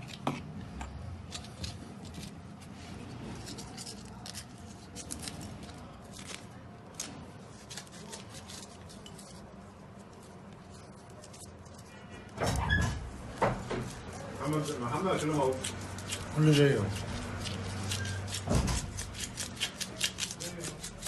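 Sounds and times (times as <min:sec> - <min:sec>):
low background hum: 0:00.0 - 0:21.0
clicks and scrapes of small parts: 0:01.2 - 0:02.7.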